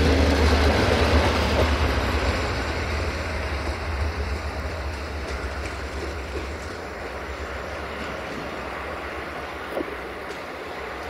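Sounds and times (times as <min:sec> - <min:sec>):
train coaches rumbling on track: 0:00.0 - 0:11.0.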